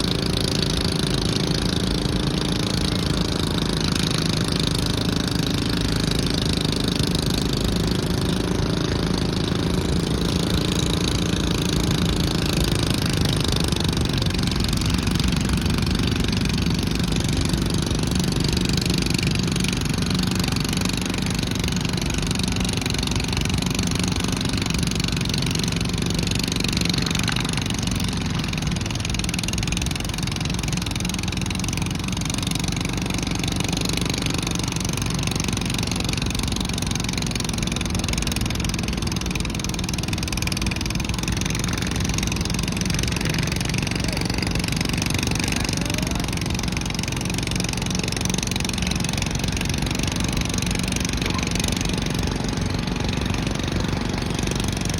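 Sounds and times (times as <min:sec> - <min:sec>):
tractor engine running: 0:00.0 - 0:54.9.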